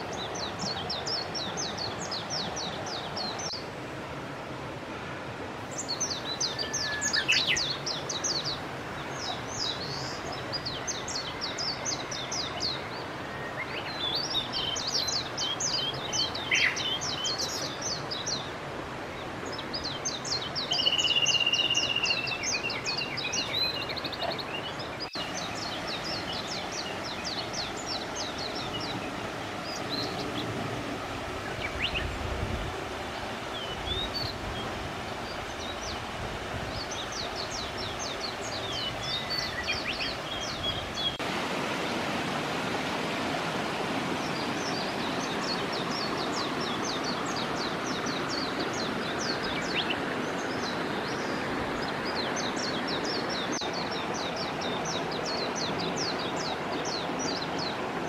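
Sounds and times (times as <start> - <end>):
songbird singing high notes: 5.7 - 18.4, 19.8 - 30.5.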